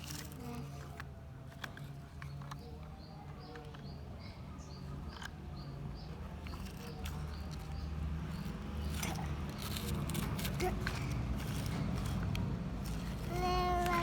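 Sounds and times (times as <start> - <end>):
small bird chirping: 2.2 - 9.8.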